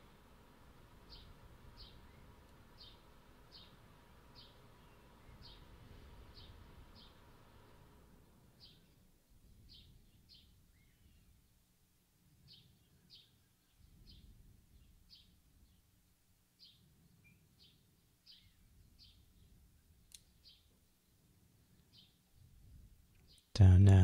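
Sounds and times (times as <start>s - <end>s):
small bird chirping: 1.0s - 7.2s, 8.2s - 11.5s, 12.4s - 23.6s
faint click: 20.1s - 20.3s.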